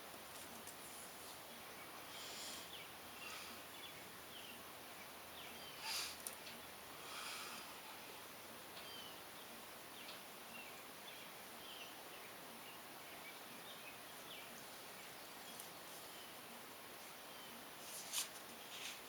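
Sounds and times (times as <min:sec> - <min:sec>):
steady low hiss: 0:00.0 - 0:19.0
soft rustle: 0:00.2 - 0:01.5, 0:14.4 - 0:19.0.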